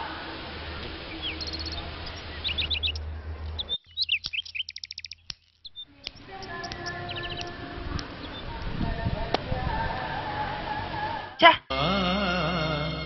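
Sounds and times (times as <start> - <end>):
small birds chirping: 0.0 - 9.4
steady low hum: 0.0 - 13.0.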